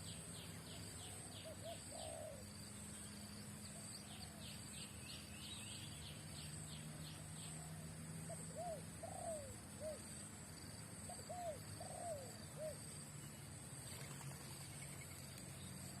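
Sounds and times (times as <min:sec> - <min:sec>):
dove cooing: 0:01.1 - 0:02.5, 0:08.3 - 0:10.2, 0:11.0 - 0:12.9.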